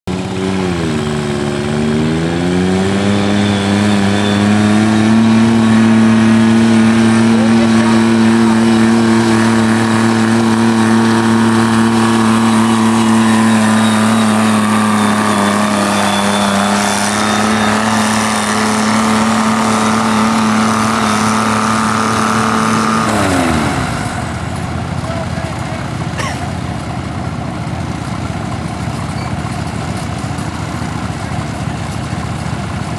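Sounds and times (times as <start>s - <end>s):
tractor diesel engine under load: 0.0s - 32.9s.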